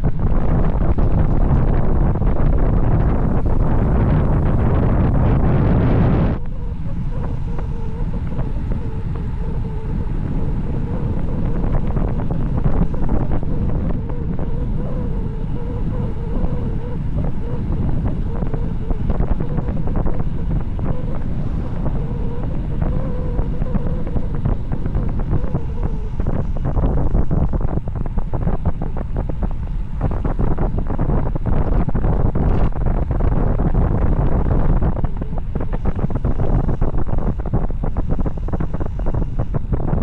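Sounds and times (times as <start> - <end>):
faint wavering whine: 0.0 - 40.0
wind buffeting microphone: 0.0 - 40.0.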